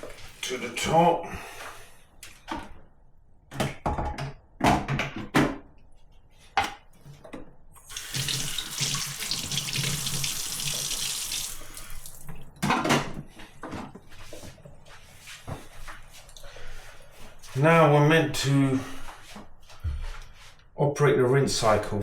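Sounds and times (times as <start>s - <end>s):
knocks and clunks of handling: 3.5s - 5.7s
tap running: 7.8s - 12.4s.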